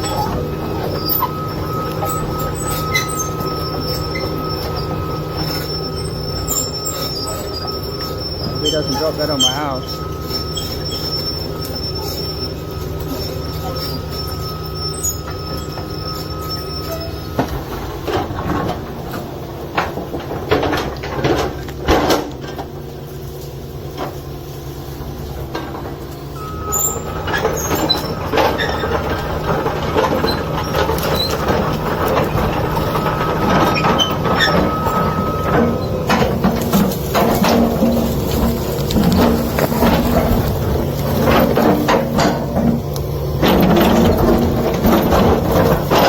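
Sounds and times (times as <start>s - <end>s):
digger diesel engine under load: 0.0s - 46.0s
rock knocking and clanking: 27.0s - 46.0s.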